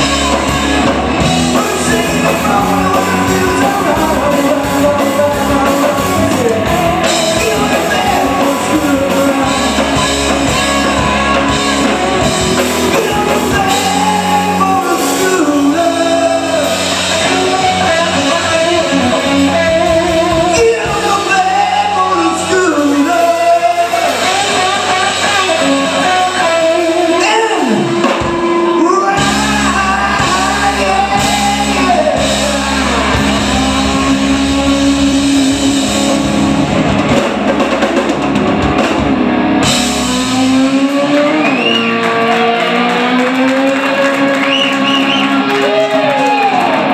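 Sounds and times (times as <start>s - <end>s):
man singing: 0.0s - 36.6s
guitar slide: 0.0s - 46.9s
live rock band playing: 0.0s - 46.9s.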